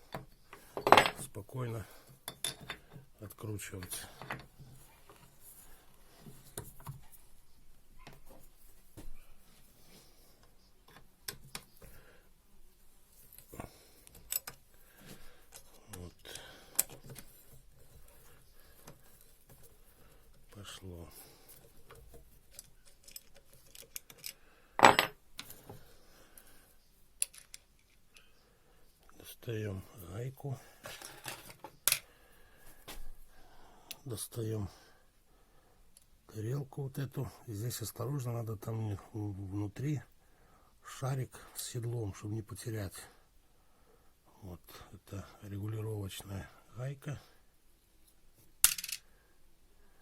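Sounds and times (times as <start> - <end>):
metal tool clanking on hard surface: 0.8 - 1.3, 24.8 - 25.2.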